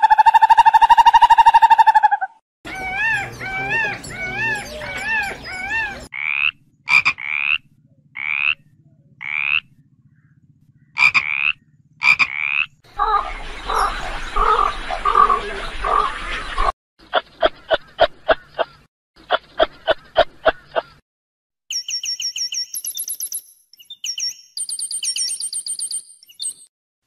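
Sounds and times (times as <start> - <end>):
short rising chirp-like calls: 0.0 - 6.2
wavering animal calls: 0.0 - 17.2
noisy animal calls: 0.0 - 21.0.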